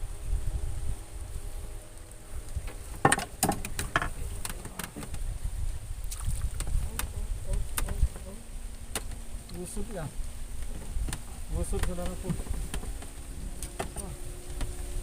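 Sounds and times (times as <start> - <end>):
sharp knocks and clatters: 2.9 - 5.2.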